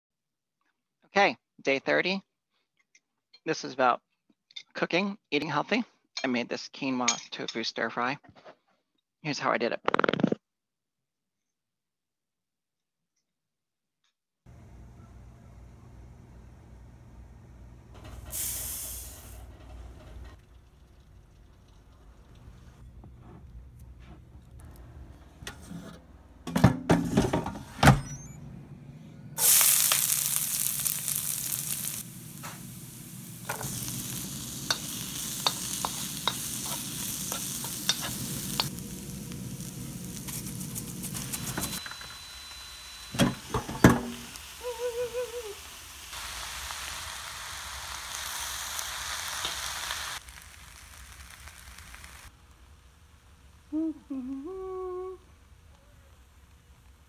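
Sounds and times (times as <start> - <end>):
food sizzling in a wok: 18.0 - 19.6, 29.4 - 54.8.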